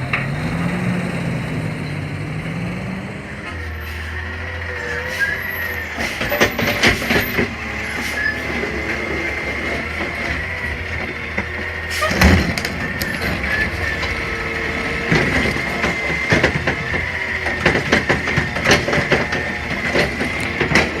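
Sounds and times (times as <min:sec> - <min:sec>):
metal clanks and knocks: 0:00.0 - 0:00.5, 0:06.0 - 0:07.6, 0:15.0 - 0:21.0
garbage truck engine whine: 0:00.0 - 0:21.0.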